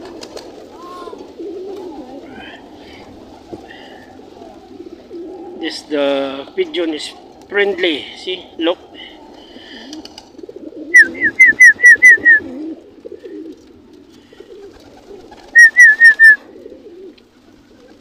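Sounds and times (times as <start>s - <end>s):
pigeons cooing: 0.0s - 18.0s
loud high rapid chirps: 15.6s - 16.4s.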